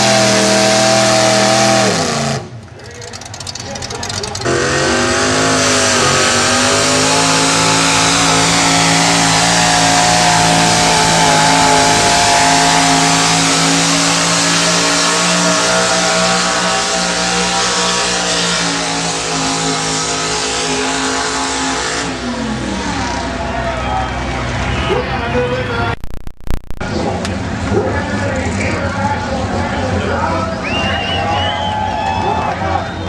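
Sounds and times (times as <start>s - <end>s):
tractor engine at full throttle: 0.0s - 26.1s.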